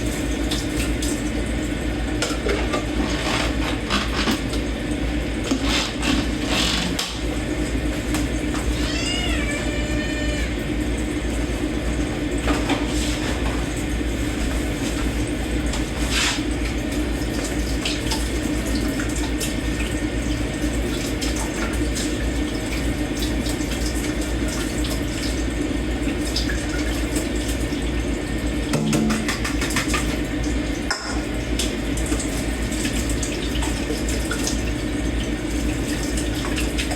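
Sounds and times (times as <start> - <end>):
tap running into sink: 28.6 - 33.0.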